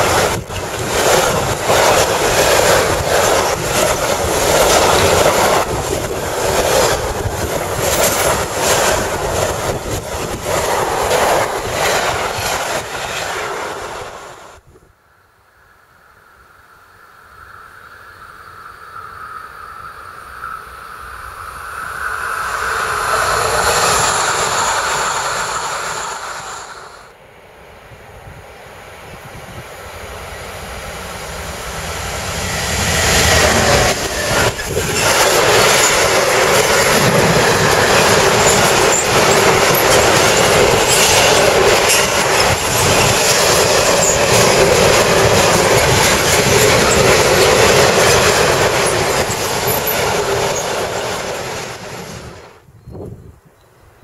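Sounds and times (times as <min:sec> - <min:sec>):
freight train wheels on rails: 0:00.0 - 0:14.7, 0:17.4 - 0:53.1
passenger train passing: 0:00.0 - 0:53.4
rapid clicks over rail joints: 0:33.5 - 0:51.6.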